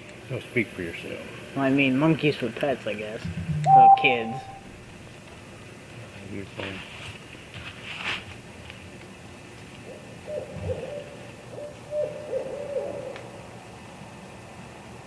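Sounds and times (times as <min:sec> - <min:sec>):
owl hooting: 0:09.8 - 0:13.6.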